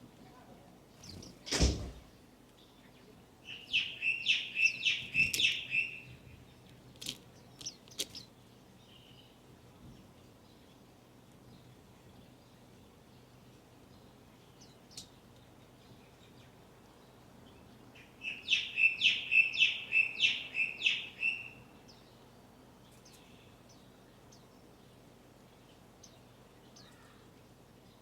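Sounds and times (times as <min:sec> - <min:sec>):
faint high chirps and ticks: 0:02.4 - 0:22.2
songbird sharp falling chirps: 0:03.7 - 0:05.9.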